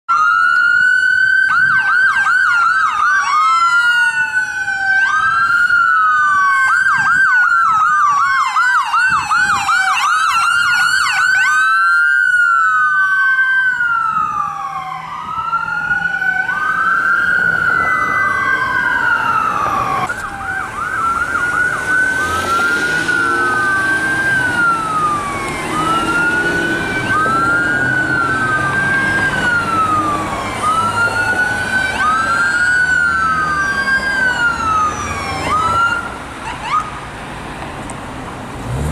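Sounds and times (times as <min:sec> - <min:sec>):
emergency sirens wailing and yelping: 0:00.1 - 0:38.9
engine and road noise: 0:00.1 - 0:38.9.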